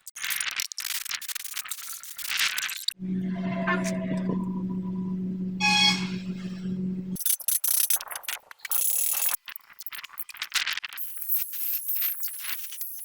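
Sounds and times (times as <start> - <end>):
low machine hum: 3.0 - 7.2.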